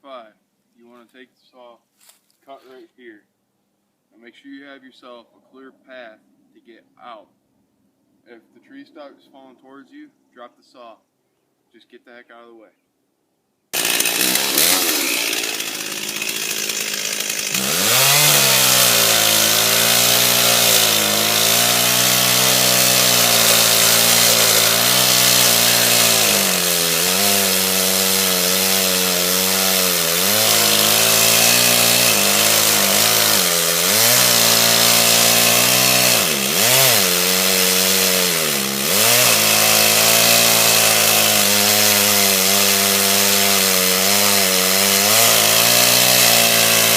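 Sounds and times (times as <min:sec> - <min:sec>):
chainsaw cutting wood: 0:13.8 - 0:46.9.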